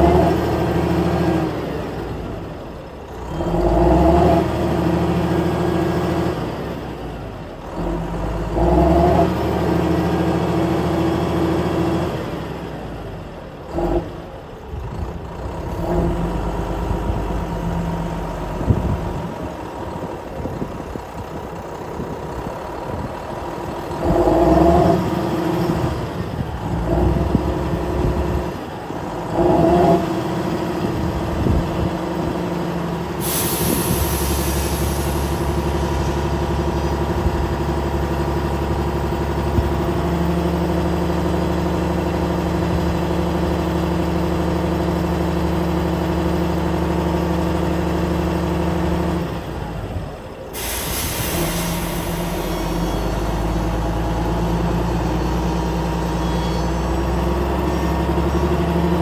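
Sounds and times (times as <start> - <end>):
diesel truck engine running: 0.0 - 59.0
air hiss: 33.2 - 35.6, 50.6 - 53.2.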